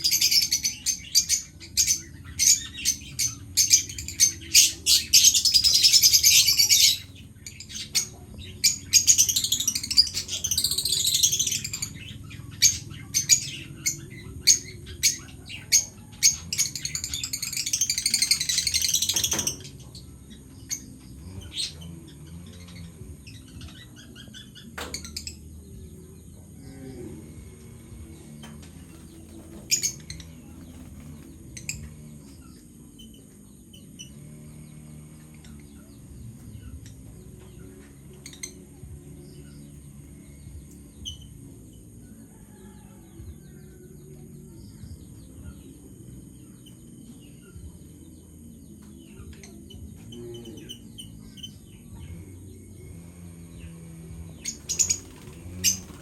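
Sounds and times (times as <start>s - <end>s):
parrots chirping: 0.0s - 19.7s
soft background music: 0.0s - 56.0s.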